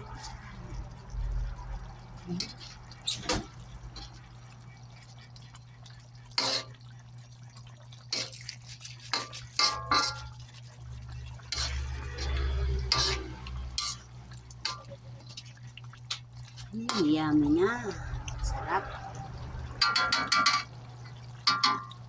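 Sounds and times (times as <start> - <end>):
utensil stirring food in a pan: 0.0 - 22.0
steady low hum: 16.6 - 20.1.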